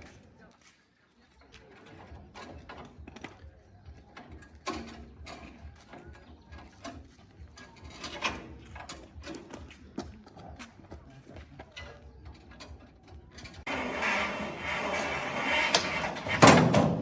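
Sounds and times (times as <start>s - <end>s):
machinery metallic clicks and knocks: 13.7s - 17.0s.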